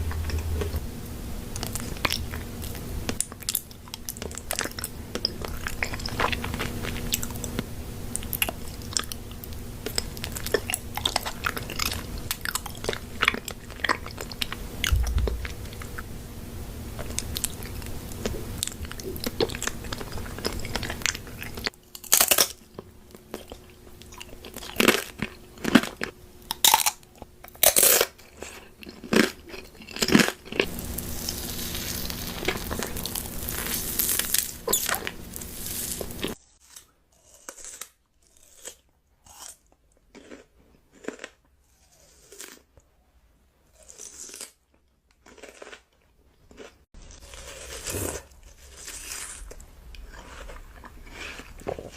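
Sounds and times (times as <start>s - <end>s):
steady background hum: 0.0s - 41.2s
crunchy chewing: 1.5s - 16.1s, 17.0s - 42.7s, 43.7s - 51.9s.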